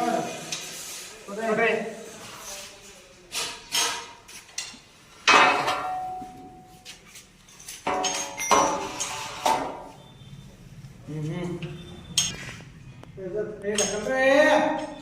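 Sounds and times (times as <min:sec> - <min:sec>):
metal parts clanking: 0:07.5 - 0:09.6.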